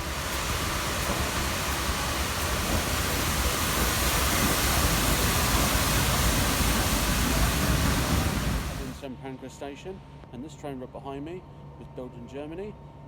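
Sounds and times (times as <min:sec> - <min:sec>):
steady rushing noise: 0:00.0 - 0:09.0
low rumble of trains: 0:00.0 - 0:13.0.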